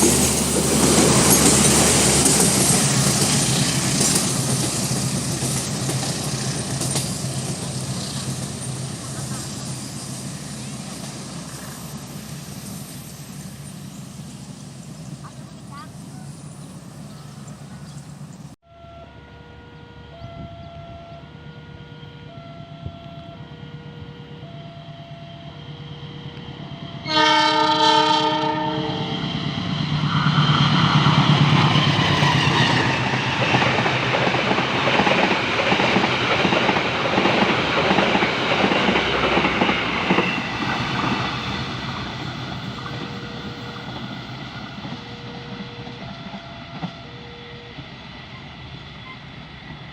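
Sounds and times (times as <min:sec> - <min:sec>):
train wheels clattering: 0:00.0 - 0:13.8, 0:29.1 - 0:47.0
two-tone warning alarm: 0:18.6 - 0:29.1, 0:42.9 - 0:47.9
train horn blast: 0:26.1 - 0:29.2.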